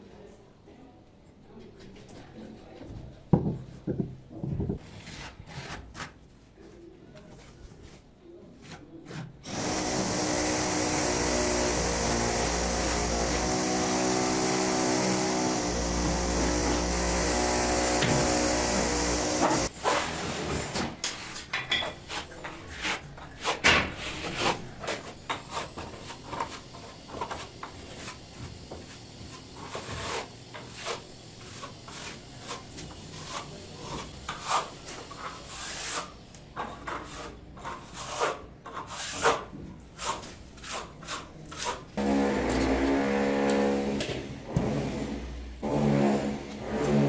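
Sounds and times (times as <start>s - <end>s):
hand tools scraping masonry: 8.6s - 44.0s.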